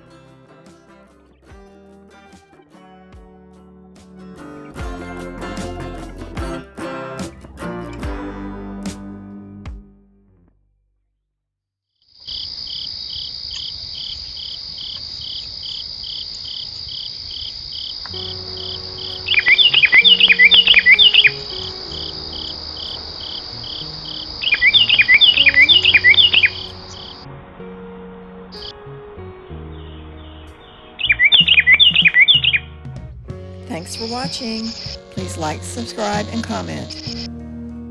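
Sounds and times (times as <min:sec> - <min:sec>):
crickets trilling: 0:12.2 - 0:21.4
faint low sustained notes: 0:18.1 - 0:32.0, 0:32.6 - 0:37.9.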